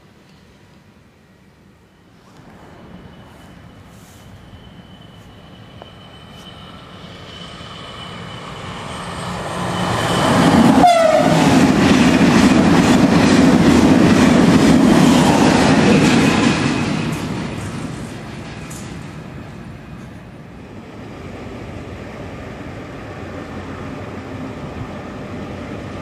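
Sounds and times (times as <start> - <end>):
train passing at speed: 0.0 - 26.0
train cars clattering over rails: 9.6 - 20.4.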